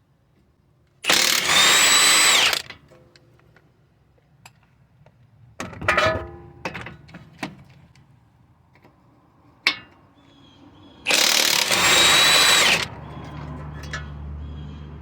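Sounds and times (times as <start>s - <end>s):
impact gun whining: 1.1s - 2.7s, 11.1s - 13.0s.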